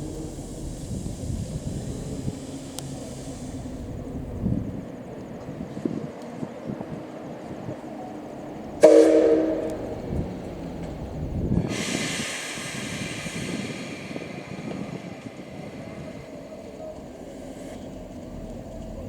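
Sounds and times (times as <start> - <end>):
long hissing rush: 0.0 - 4.5, 9.8 - 18.6
locomotive whistle blast: 8.8 - 10.0.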